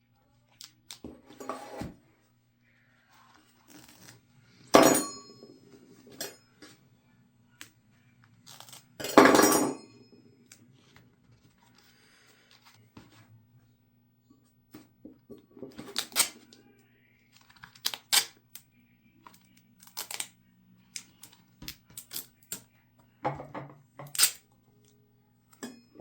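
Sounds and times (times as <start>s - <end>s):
duct tape ripping: 8.4s - 8.9s, 15.9s - 16.4s, 17.4s - 18.4s, 19.8s - 20.3s, 24.1s - 24.4s.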